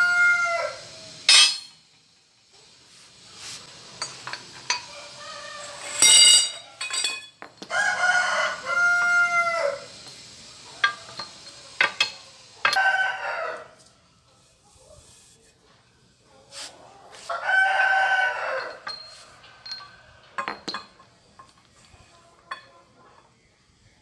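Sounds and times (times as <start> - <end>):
rooster crowing: 0.0 - 0.9, 4.8 - 6.1, 7.7 - 9.9, 12.7 - 13.8, 17.3 - 20.4
metal clinks: 5.9 - 7.7, 18.6 - 21.7.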